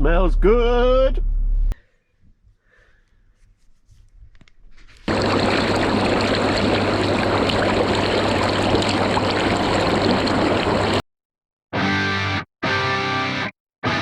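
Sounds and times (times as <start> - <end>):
blower humming: 5.1 - 11.0
water bubbling and churning: 5.1 - 11.0.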